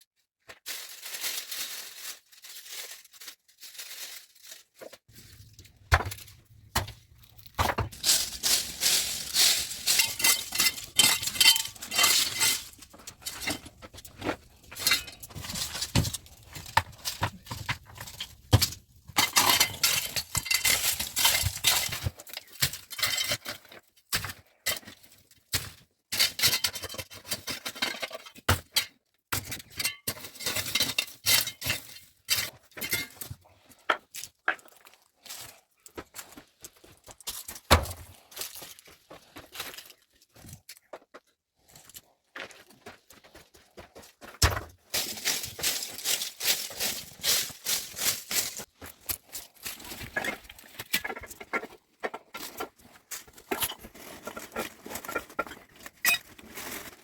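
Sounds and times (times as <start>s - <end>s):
hard objects clinking together: 5.8s - 23.7s.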